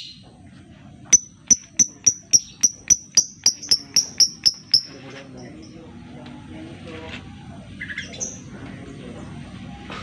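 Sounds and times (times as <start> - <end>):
lovebird ticking chips: 1.1 - 5.7.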